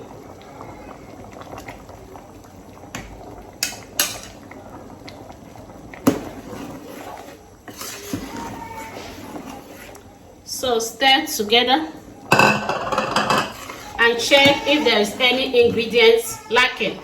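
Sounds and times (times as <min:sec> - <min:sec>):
soup bubbling: 0:00.0 - 0:17.0
metal utensil clinking on pot: 0:12.3 - 0:13.6.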